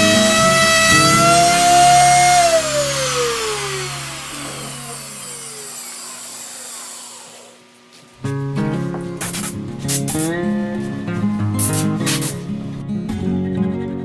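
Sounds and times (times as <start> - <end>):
wood router spinning down: 0.0 - 8.2.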